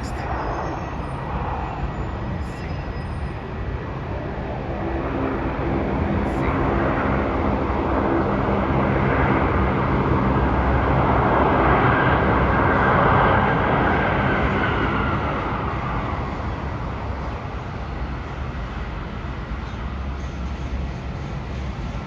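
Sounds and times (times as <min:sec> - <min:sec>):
low steady hum: 0:00.0 - 0:12.4.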